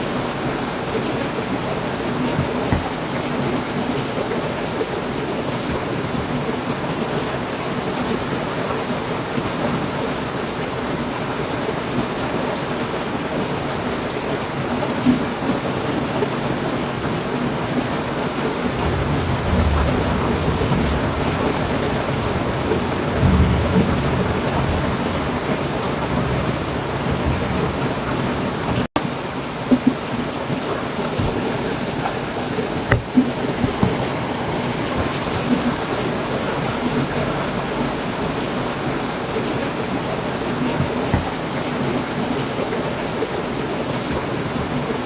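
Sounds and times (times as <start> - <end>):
heavy rain: 0.0 - 45.0
low rumbles: 18.8 - 28.2
low thuds: 32.8 - 34.3.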